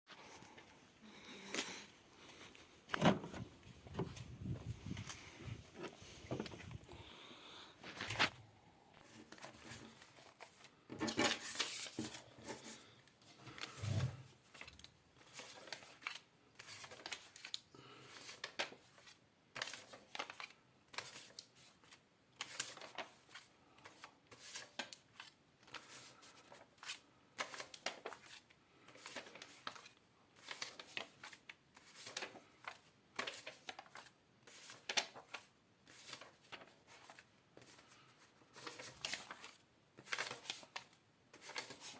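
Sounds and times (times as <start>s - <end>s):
paper banknotes rustling: 7.8s - 8.4s, 9.0s - 41.9s.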